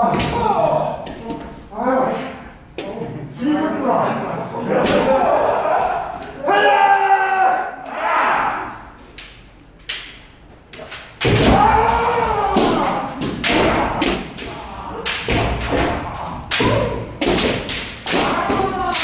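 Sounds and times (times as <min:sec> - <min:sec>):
person shouting: 0:05.4 - 0:08.8, 0:11.4 - 0:16.9
bamboo swords striking armour: 0:11.2 - 0:18.7.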